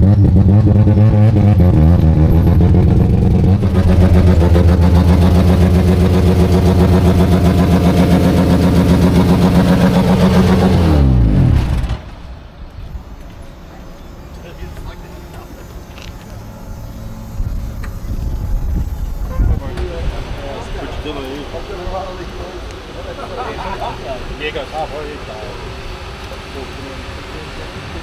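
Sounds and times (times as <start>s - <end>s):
rotary engine running loud: 0.0s - 12.1s, 12.8s - 28.0s.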